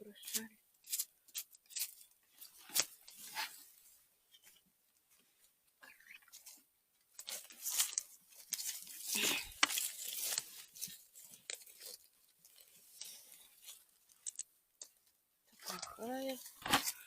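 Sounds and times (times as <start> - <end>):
dry leaf litter crunching and rustling: 7.3 - 12.0.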